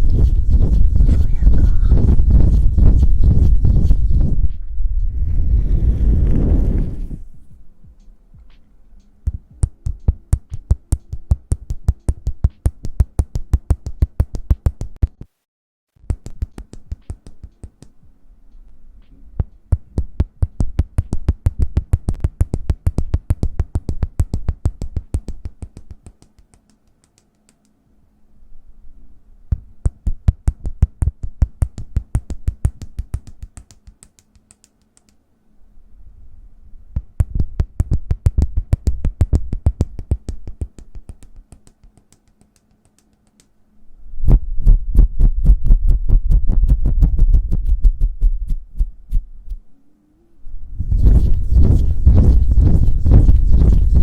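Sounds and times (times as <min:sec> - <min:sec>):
hands tapping and patting: 0:09.3 - 0:15.3, 0:16.0 - 0:18.1, 0:19.4 - 0:27.8, 0:29.5 - 0:35.2, 0:37.0 - 0:43.5, 0:50.8 - 0:54.0.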